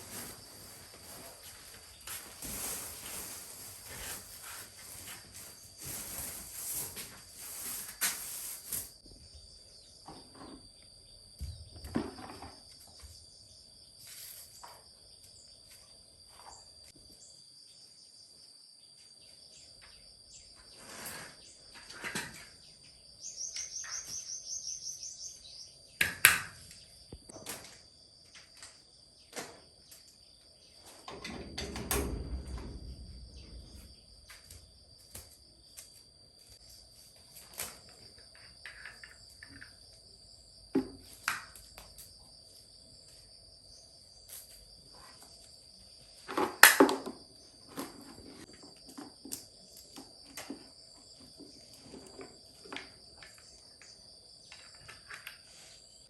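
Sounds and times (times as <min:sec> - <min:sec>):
insects chirring: 0:00.0 - 0:56.0
insect pulsed trill: 0:22.6 - 0:26.0.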